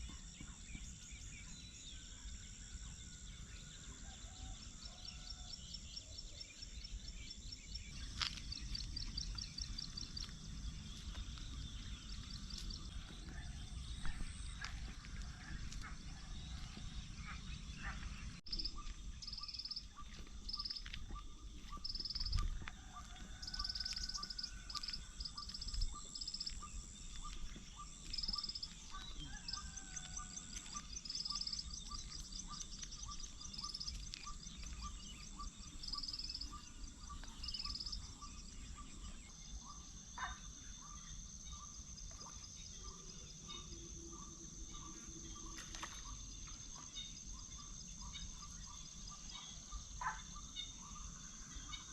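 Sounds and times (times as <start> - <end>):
birds chirping: 5.2 - 40.3.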